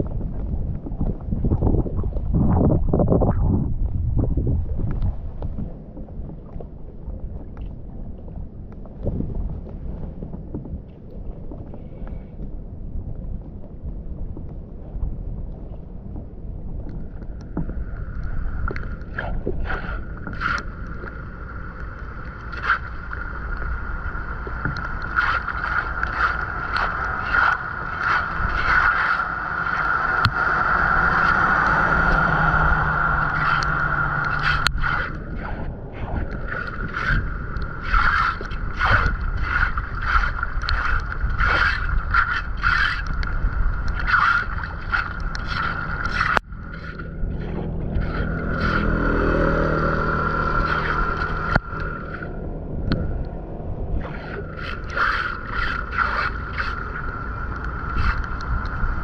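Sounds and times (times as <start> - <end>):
water rushing through drain: 17.6 - 53.3, 54.0 - 59.0.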